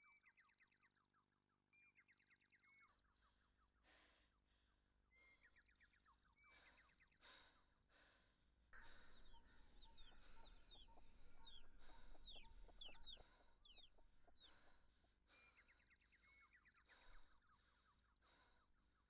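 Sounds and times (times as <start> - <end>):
faint bird chirping: 8.8 - 19.0.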